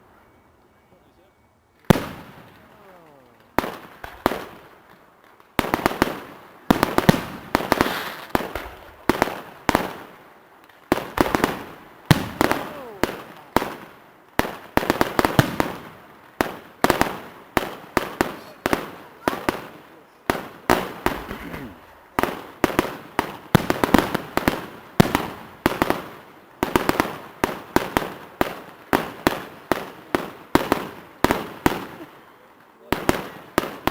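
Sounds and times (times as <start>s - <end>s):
firework crackle: 1.7s - 33.9s
firework shells bursting: 1.8s - 10.0s.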